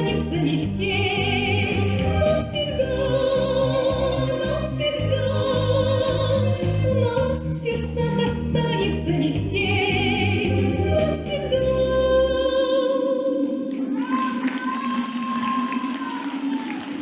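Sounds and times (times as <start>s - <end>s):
backing track music: 0.0s - 12.7s
woman singing: 0.0s - 13.7s.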